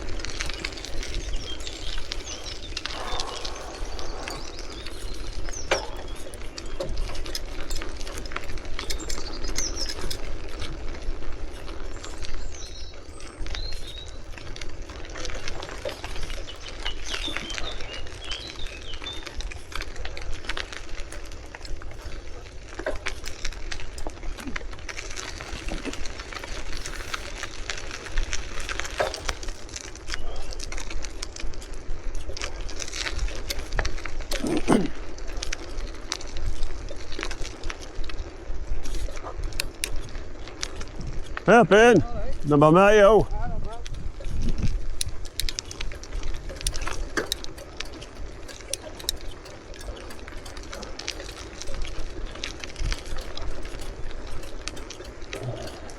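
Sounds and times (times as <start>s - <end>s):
wind buffeting microphone: 0.0s - 29.8s, 30.6s - 55.9s
bicycle clicks and rattles: 0.0s - 42.5s, 43.3s - 55.9s
bicycle tyres rolling on road: 0.0s - 55.9s
bird chirps: 0.4s - 7.0s.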